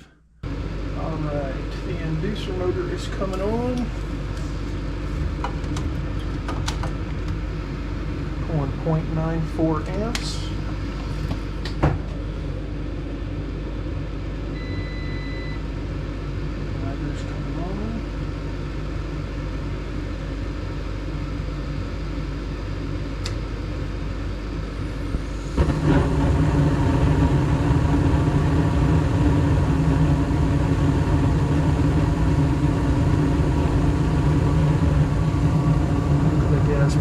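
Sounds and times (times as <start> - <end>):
furnace inducer motor humming: 0.0 - 37.0
gas flame rushing: 24.6 - 37.0.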